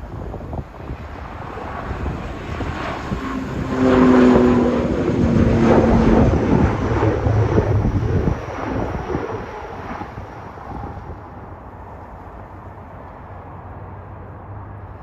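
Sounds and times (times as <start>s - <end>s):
wind buffeting microphone: 0.0s - 11.6s
airliner engines passing: 0.0s - 15.0s.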